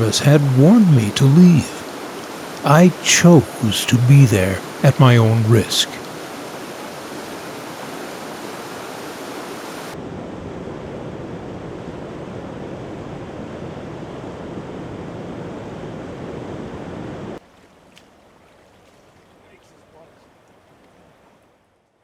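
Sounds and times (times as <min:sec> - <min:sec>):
rushing floodwater: 0:00.0 - 0:10.0.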